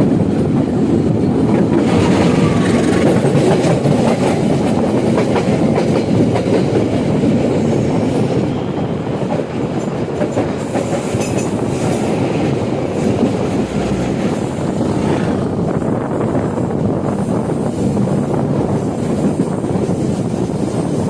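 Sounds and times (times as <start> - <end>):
train wheels rumbling on rails: 0.0 - 21.0
faint clickety-clack: 9.3 - 12.1.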